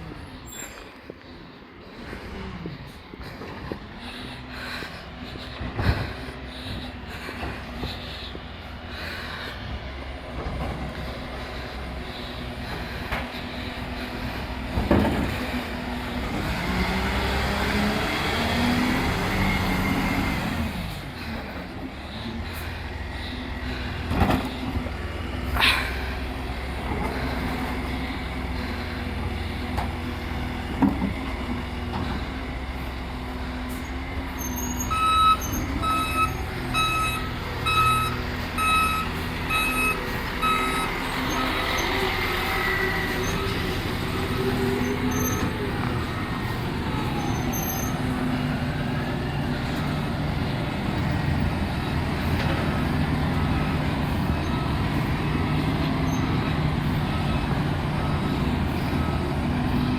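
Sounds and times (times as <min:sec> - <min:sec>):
truck engine running: 0:00.0 - 0:59.9
reversing alarm beeping: 0:33.8 - 0:48.2.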